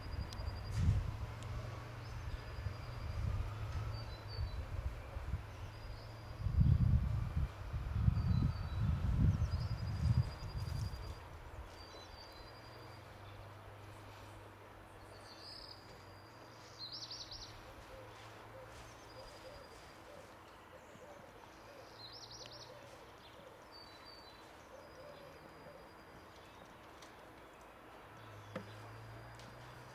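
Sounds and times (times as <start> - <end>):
small birds chirping: 8.1 - 29.9.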